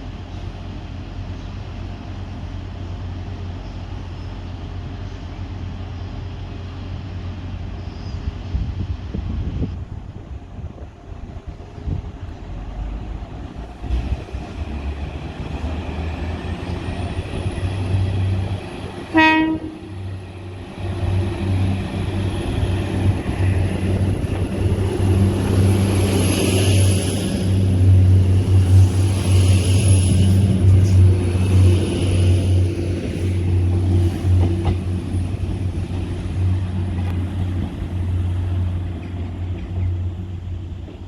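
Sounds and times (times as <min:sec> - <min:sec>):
train diesel engine droning: 0:00.0 - 0:41.0
train horn toot: 0:19.1 - 0:20.2.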